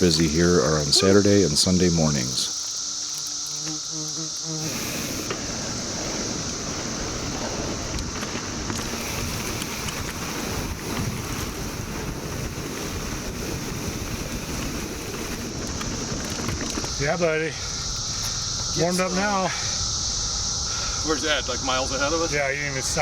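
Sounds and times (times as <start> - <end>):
mountain bike rumble on trail: 0.0 - 21.0
cicadas droning: 0.0 - 23.0
wind buffeting microphone: 4.7 - 23.0.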